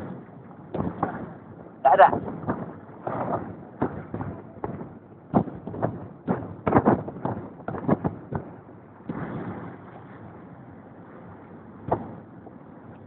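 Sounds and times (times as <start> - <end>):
sharp thumps and knocks: 2.0 - 9.7, 11.8 - 12.2.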